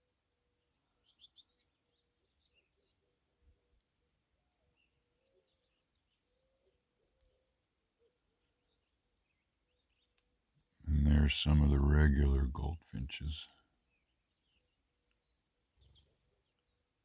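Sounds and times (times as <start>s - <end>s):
songbirds chirping: 0.0s - 17.0s
faint steady hum: 10.9s - 13.5s.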